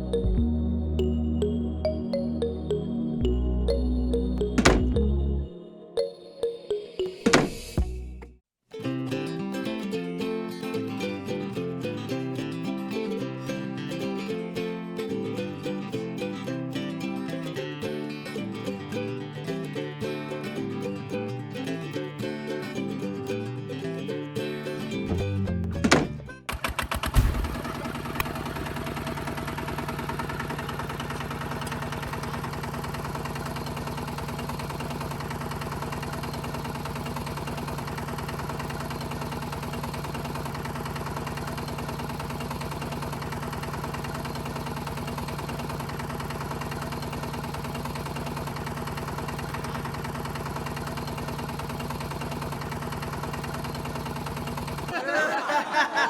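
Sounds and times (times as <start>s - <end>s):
small tractor engine idling: 25.7s - 55.0s.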